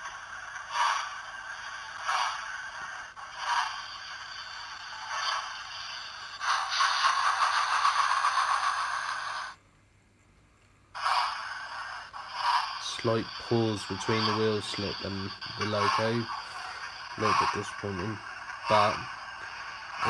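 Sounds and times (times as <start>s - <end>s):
model steam locomotive chuffing: 0.0s - 9.6s, 11.0s - 20.0s.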